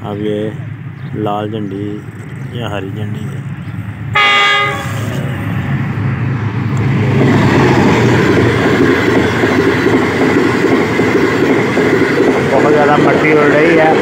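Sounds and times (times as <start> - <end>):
train horn blast: 4.1 - 5.2
train wheels on rails: 4.6 - 14.0.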